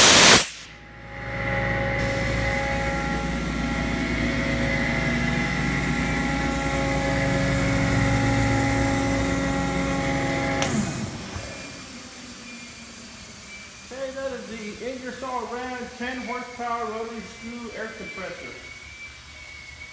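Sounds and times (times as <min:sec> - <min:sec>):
faint hiss: 0:00.0 - 0:00.7
compressor shutoff click: 0:00.0 - 0:00.8, 0:01.6 - 0:18.7
air compressor running: 0:00.0 - 0:19.8.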